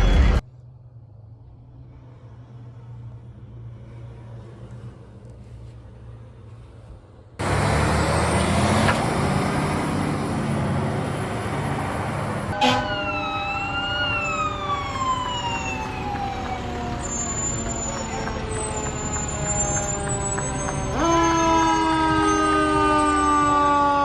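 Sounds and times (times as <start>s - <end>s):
fire truck engine and road noise: 0.0s - 24.0s
siren wail: 8.2s - 24.0s.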